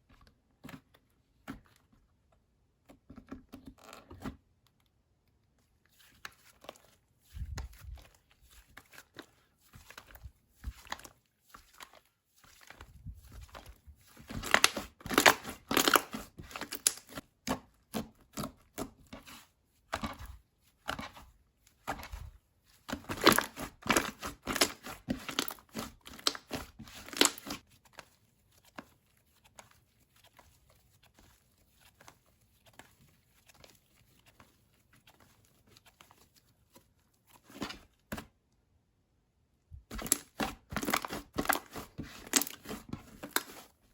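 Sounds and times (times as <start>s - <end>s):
slime squishing and popping: 39.9s - 43.5s.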